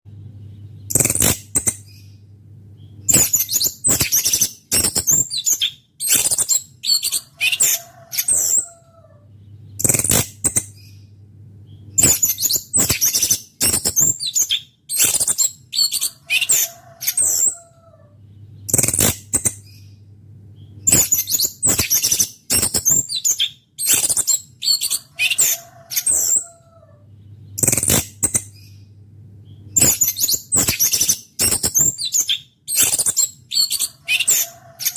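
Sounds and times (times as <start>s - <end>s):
steady low hum: 0.1s - 3.9s, 8.4s - 12.8s, 17.4s - 21.6s, 26.6s - 32.7s.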